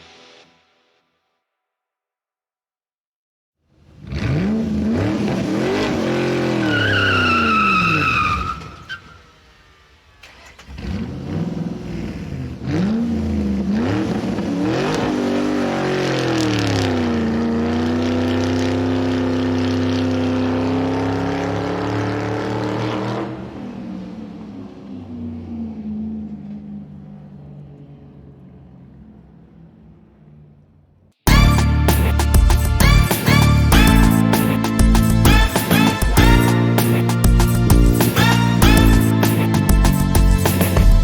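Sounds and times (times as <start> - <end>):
car engine revving: 3.9 - 8.7, 9.3 - 41.0
tire squeal: 5.2 - 11.0.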